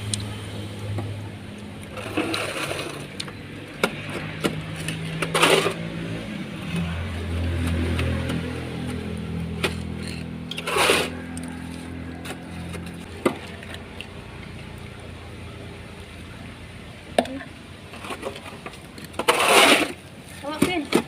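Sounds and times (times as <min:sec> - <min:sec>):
engine running: 0:00.0 - 0:20.5
short scrape: 0:09.7 - 0:11.9, 0:19.2 - 0:20.0.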